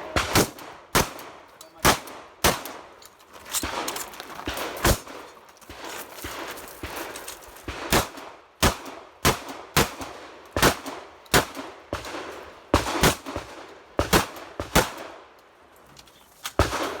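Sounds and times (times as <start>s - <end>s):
shotgun shots: 0.0s - 15.2s, 16.6s - 17.0s.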